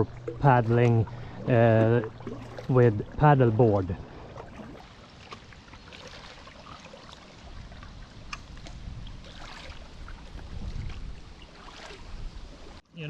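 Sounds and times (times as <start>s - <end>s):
paddle splashing in water: 0.0s - 12.8s
wind rumble on microphone: 7.4s - 12.8s.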